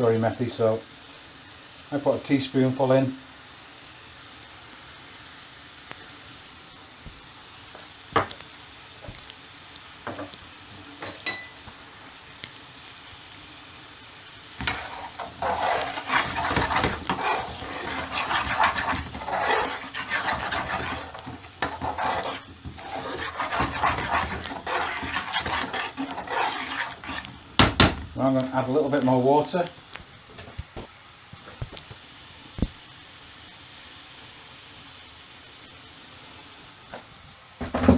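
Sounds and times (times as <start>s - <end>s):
spoon stirring sauce in a pan: 14.6s - 28.0s.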